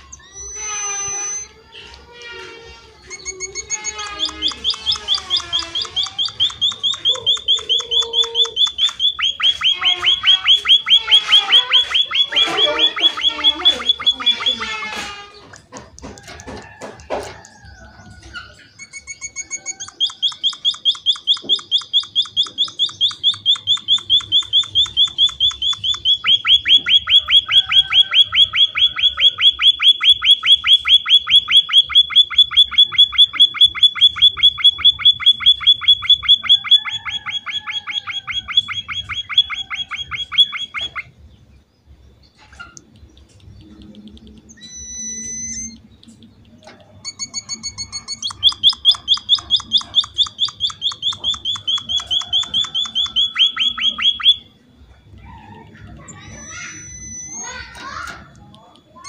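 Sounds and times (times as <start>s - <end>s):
finch sharp repeated chirps: 3.1s - 15.1s, 18.6s - 41.2s, 42.1s - 54.5s, 55.8s - 58.1s
high whistled notes: 3.2s - 15.2s.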